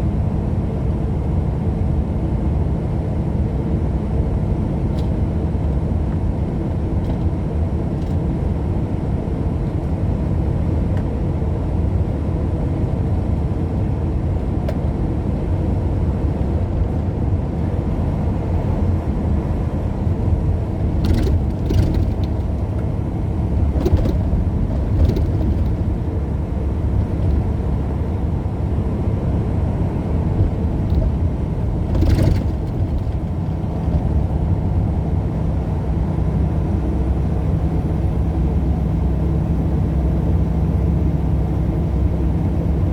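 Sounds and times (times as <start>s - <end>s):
car driving at speed: 0.0s - 42.9s.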